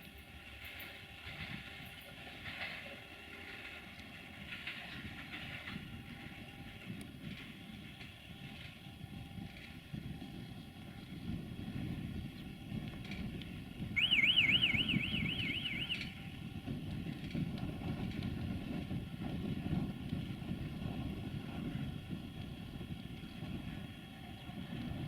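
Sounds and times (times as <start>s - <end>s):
electronic warbling alarm: 14.0s - 16.2s.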